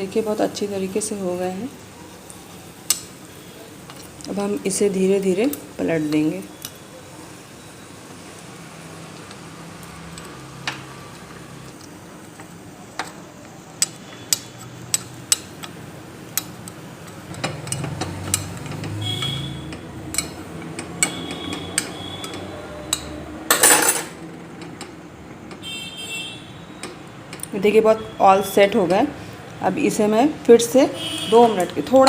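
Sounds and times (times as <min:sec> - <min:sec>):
metal utensil tapping on pan: 0:02.9 - 0:03.2, 0:16.4 - 0:24.0.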